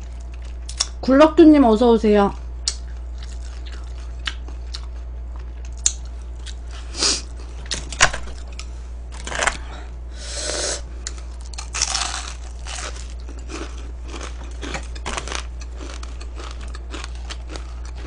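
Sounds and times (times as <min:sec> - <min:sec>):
chewing crispy food: 0:00.0 - 0:01.0, 0:02.3 - 0:07.8, 0:11.0 - 0:18.0.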